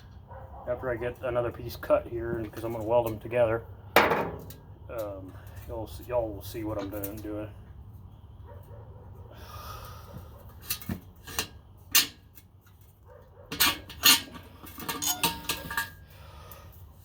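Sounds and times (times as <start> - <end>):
metal clanks and knocks: 4.0 - 4.6, 13.5 - 16.0.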